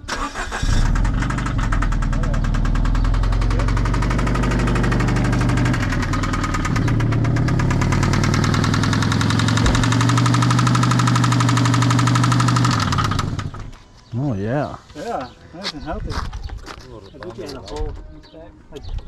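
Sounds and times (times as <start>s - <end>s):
car engine idling with knocking: 1.0s - 13.7s.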